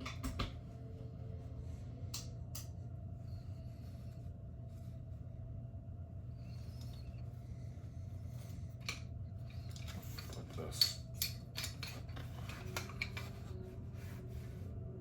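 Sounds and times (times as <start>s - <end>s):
small metal parts clicking and clinking: 9.7s - 13.3s.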